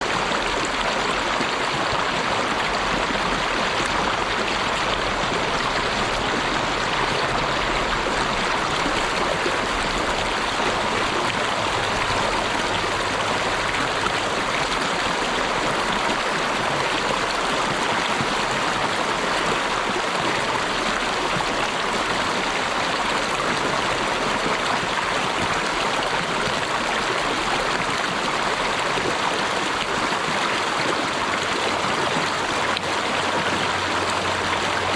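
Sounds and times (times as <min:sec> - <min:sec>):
running water: 0:00.0 - 0:34.9.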